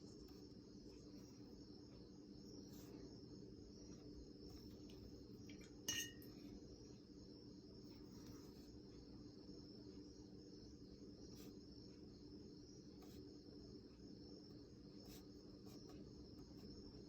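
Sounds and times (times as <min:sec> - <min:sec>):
faint steady hum: 0:00.0 - 0:17.0
paintbrush tapping glass jar: 0:05.6 - 0:06.4.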